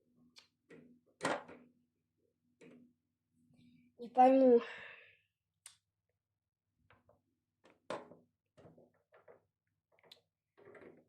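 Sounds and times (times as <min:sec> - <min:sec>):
faint handling clicks and knocks: 0:06.9 - 0:11.0.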